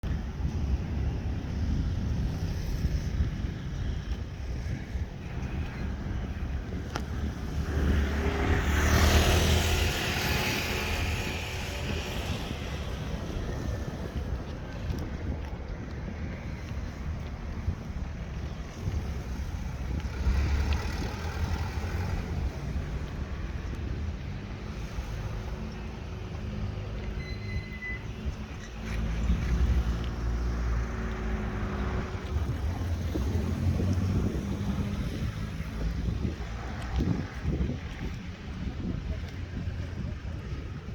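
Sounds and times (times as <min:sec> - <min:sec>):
wind noise on microphone: 0:00.0 - 0:40.9
vehicle driving past: 0:07.5 - 0:13.1.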